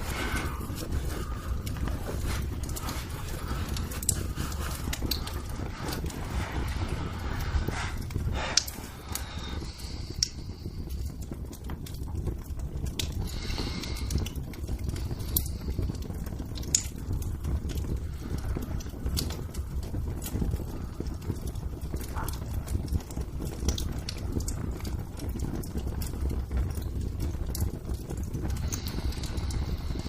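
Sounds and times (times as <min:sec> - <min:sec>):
low rumble: 0:00.0 - 0:10.8
wood fire crackling: 0:00.0 - 0:30.0.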